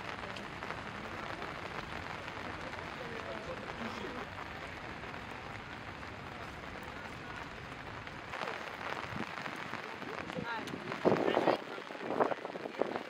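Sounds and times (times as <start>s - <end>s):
rain pattering on stone and puddles: 0.0s - 13.0s.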